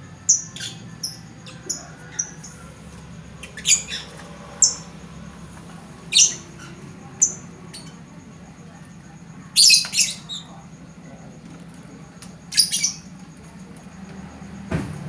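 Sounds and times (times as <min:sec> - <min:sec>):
bird shrill squawks: 0:03.4 - 0:04.9, 0:12.5 - 0:13.1.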